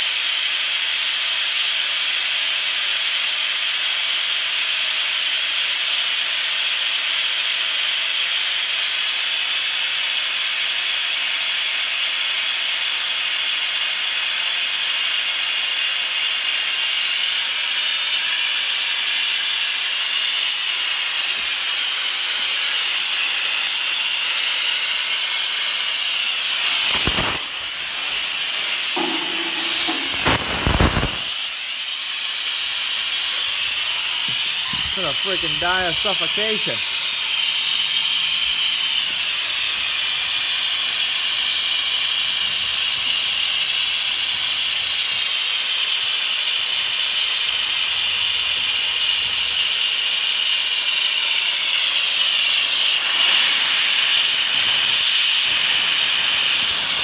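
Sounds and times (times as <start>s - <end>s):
gas hissing from cylinder: 17.4s - 45.3s, 46.5s - 57.0s.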